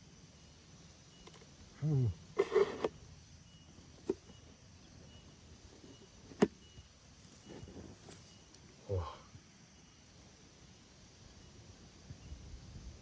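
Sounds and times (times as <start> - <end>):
faint outdoor background: 0.0 - 13.0
handling rustle: 2.4 - 2.9, 5.7 - 8.6.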